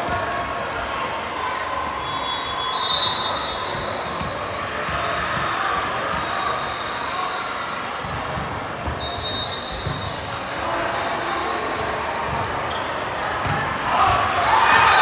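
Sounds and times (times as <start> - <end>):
ball thuds echoing in a gym: 13.4 - 14.4.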